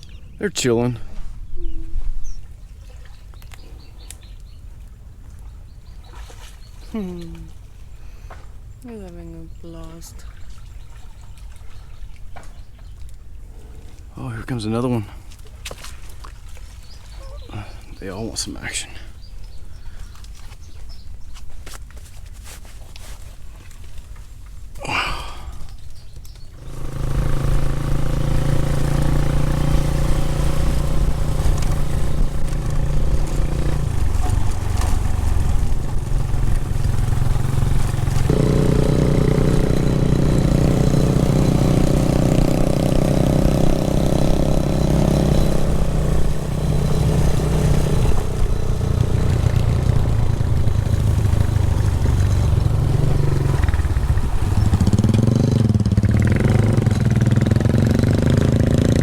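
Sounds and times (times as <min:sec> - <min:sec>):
motorcycle engine running: 0:26.5 - 0:59.0.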